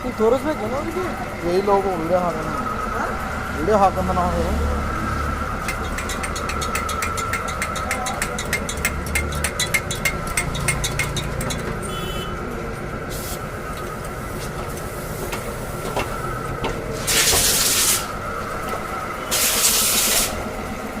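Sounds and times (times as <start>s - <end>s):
engine idling: 0.0s - 21.0s
compressed air hissing: 13.1s - 13.5s, 16.9s - 18.2s, 19.2s - 20.6s.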